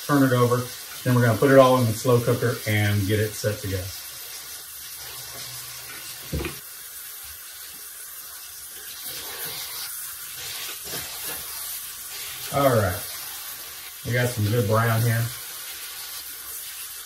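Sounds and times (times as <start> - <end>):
meat sizzling in a skillet: 0.0 - 17.0
wooden spatula stirring: 10.6 - 13.8.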